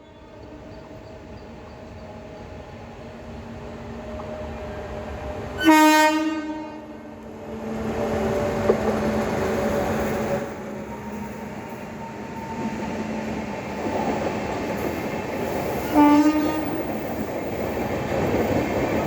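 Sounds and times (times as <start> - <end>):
train running noise: 0.0 - 19.0
train horn blast: 5.6 - 7.1, 15.8 - 16.8.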